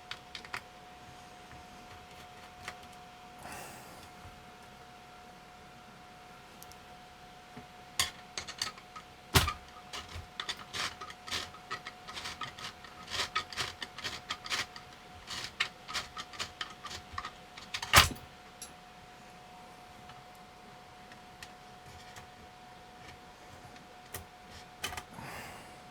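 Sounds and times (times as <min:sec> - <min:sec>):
small hard parts clicking: 0:08.0 - 0:18.7.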